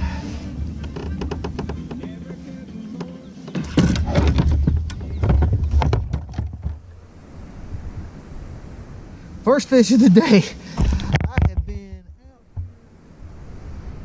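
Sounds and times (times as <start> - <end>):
knocking and rubbing in a kayak: 0.4 - 7.1, 10.7 - 12.9.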